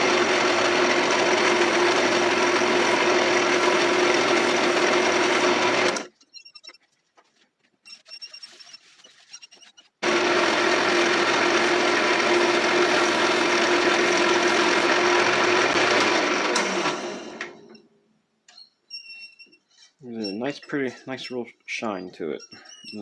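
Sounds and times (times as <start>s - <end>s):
lathe winding down: 0.0s - 6.1s, 10.0s - 17.7s
wood lathe running: 0.0s - 6.1s, 10.0s - 17.6s.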